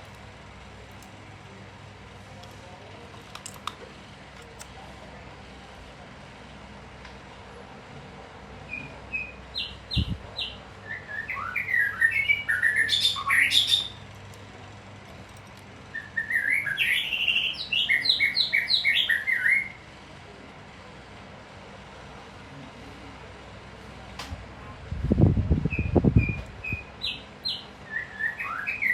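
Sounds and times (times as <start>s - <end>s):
songbird singing: 8.7s - 14.0s, 15.9s - 19.8s, 25.6s - 28.9s.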